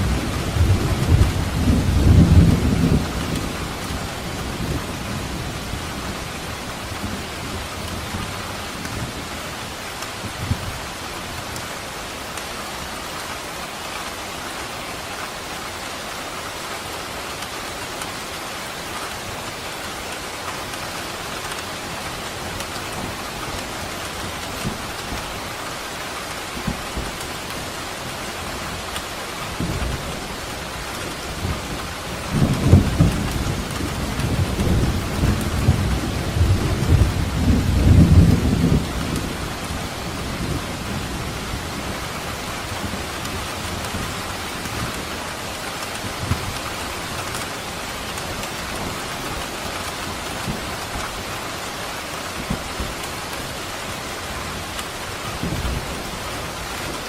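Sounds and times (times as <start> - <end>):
thunder rumbling: 0.0 - 9.3, 26.5 - 51.7
steady rain falling: 0.0 - 57.0.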